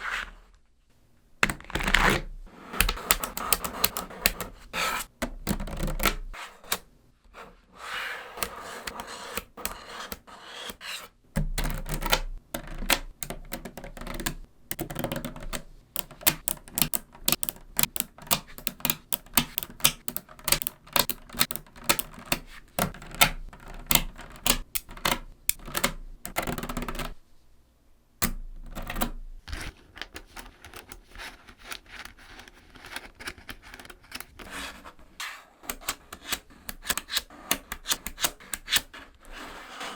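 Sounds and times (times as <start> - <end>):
magnetic balls clicking together: 11.4 - 27.2.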